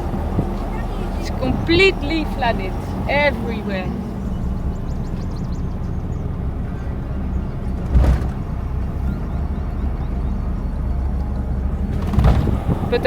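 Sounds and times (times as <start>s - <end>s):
car engine and road rumble: 0.0s - 13.0s
car bump: 6.2s - 9.0s, 11.9s - 13.0s.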